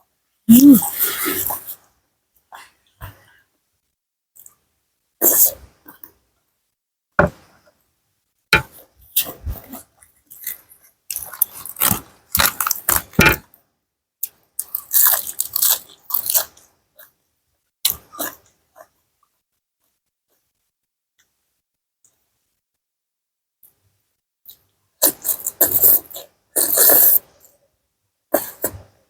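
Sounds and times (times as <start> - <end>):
person chewing and crunching food: 10.3 - 13.1, 14.2 - 16.6.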